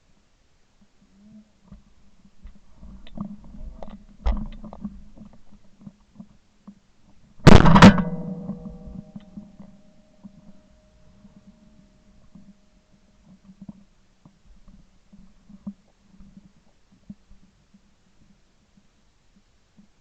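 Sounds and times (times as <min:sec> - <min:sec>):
gun handling rumble and knocks: 0:01.7 - 0:10.6.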